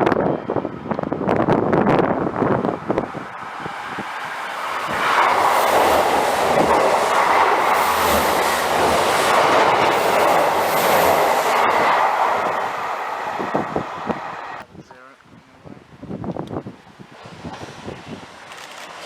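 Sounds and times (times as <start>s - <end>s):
train wheels rushing on track: 0.0s - 14.6s, 17.0s - 19.0s.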